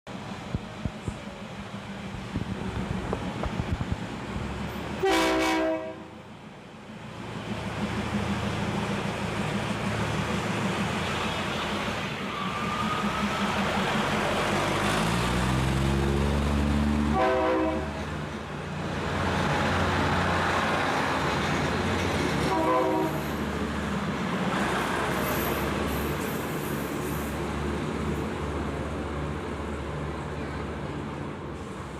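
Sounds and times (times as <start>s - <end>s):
train horn blasts: 5.0s - 6.2s, 17.1s - 18.0s, 22.5s - 23.2s
diesel train engine revving: 7.0s - 31.9s.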